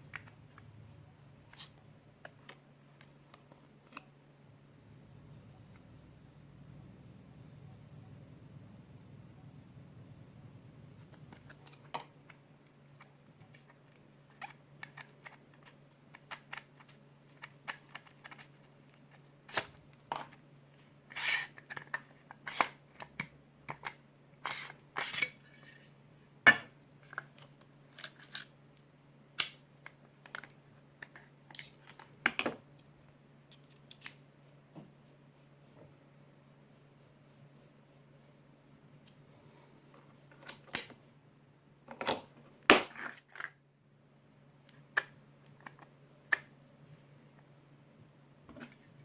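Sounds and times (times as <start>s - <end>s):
faint low hum: 0.0s - 49.0s
small clicks of metal and plastic parts: 27.0s - 28.5s, 29.4s - 34.2s.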